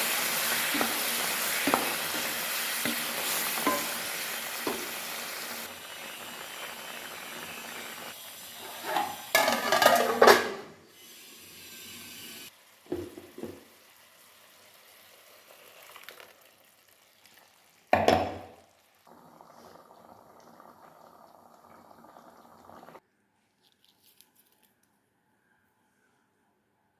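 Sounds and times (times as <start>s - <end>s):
utensil clatter: 8.7s - 10.6s
curry bubbling: 18.7s - 23.0s.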